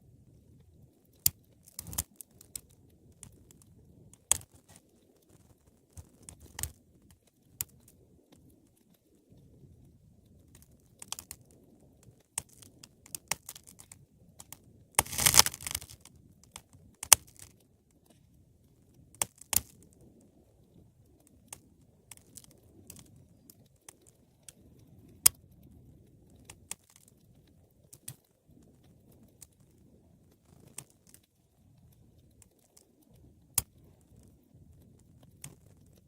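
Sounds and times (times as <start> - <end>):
wood fire crackling: 0.0 - 36.0.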